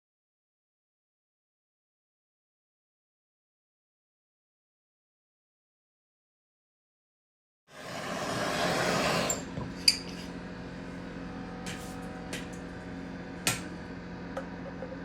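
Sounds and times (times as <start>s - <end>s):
steady low hum: 9.4s - 15.0s.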